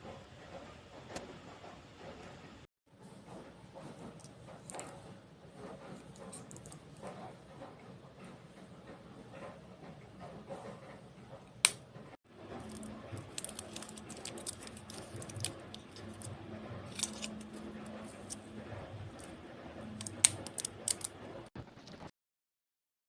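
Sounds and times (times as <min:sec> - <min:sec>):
small objects clicking and rattling: 0:12.5 - 0:18.4, 0:19.1 - 0:21.2.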